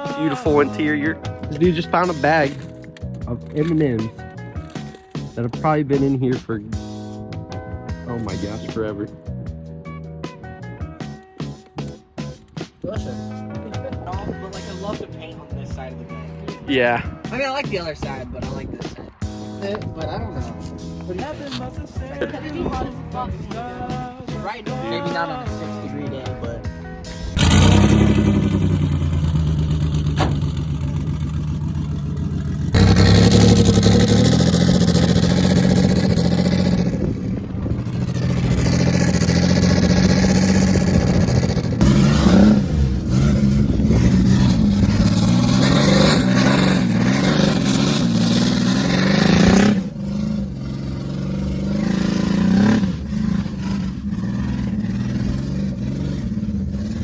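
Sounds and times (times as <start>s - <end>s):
engine revving hard: 27.2s - 57.0s.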